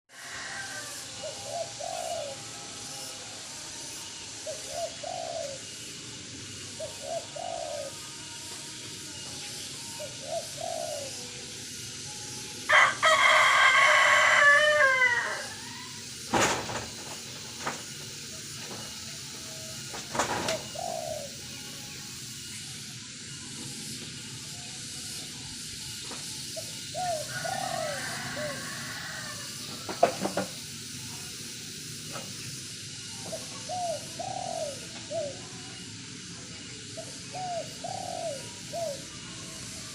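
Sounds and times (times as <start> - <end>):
dove cooing: 0.1 - 2.8, 4.3 - 8.1, 9.9 - 11.5, 18.9 - 21.6, 25.7 - 30.6, 33.0 - 35.5, 36.9 - 39.2
rooster crowing: 0.1 - 3.2, 12.7 - 16.3, 26.9 - 30.4.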